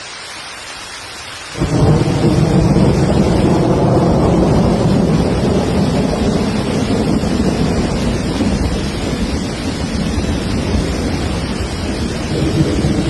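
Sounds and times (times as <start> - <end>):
rain hissing: 0.0 - 13.0
thunder clap and rumble: 1.6 - 13.0.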